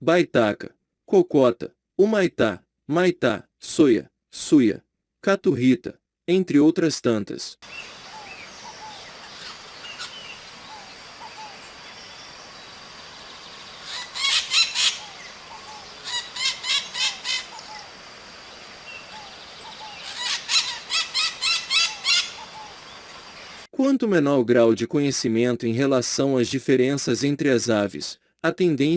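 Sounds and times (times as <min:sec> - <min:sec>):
parrot screeching: 0:08.1 - 0:11.6, 0:13.8 - 0:17.9, 0:19.7 - 0:22.7.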